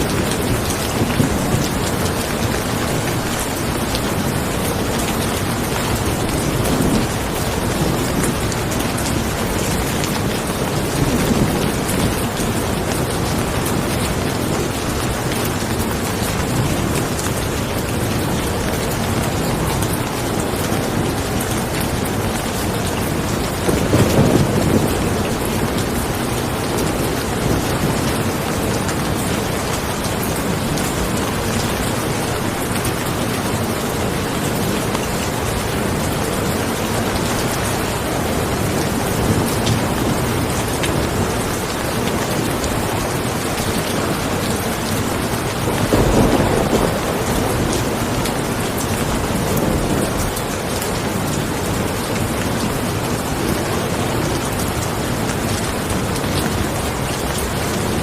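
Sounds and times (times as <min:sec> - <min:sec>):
steady rain hiss: 0:00.0 - 0:58.0
low thunder rumbles: 0:20.7 - 0:41.6, 0:44.5 - 0:52.6.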